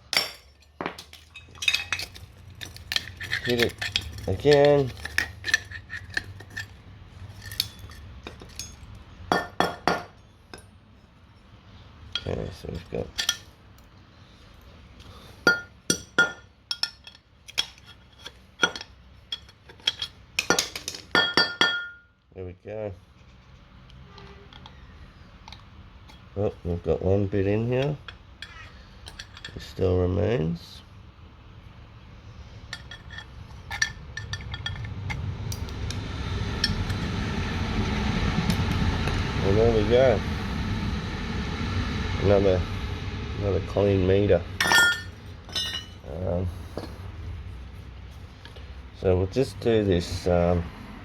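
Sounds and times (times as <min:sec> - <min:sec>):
metal parts clinking together: 0:00.1 - 0:09.0, 0:16.7 - 0:21.0, 0:32.7 - 0:34.9, 0:44.6 - 0:46.0
metal clinking and knocks: 0:32.7 - 0:35.2, 0:44.6 - 0:46.0
low rumble: 0:33.3 - 0:49.1.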